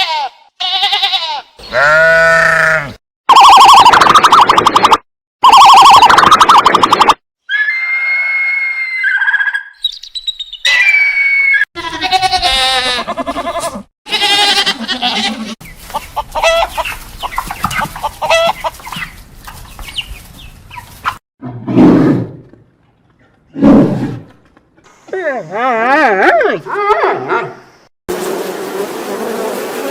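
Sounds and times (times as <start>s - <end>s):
whistled bird calls: 8.7s - 11.6s
short bird chirps: 9.7s - 10.7s
chickens clucking: 15.4s - 21.2s.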